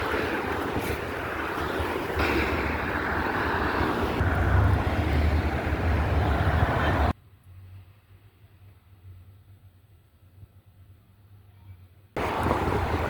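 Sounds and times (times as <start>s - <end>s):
wind buffeting microphone: 0.0s - 7.2s, 12.2s - 13.0s.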